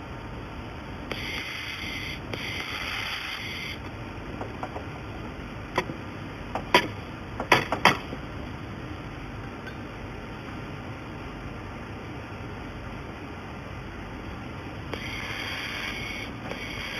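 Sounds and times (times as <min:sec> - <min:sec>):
welding machine hissing: 0:01.1 - 0:03.9, 0:14.9 - 0:16.9
sharp knocks: 0:06.6 - 0:08.1.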